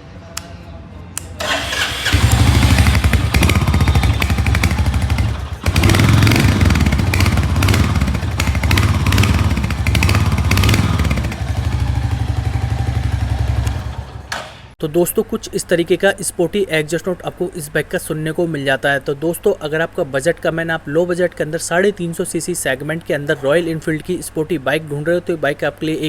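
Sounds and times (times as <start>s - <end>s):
motorcycle engine exhaust: 1.4s - 14.3s.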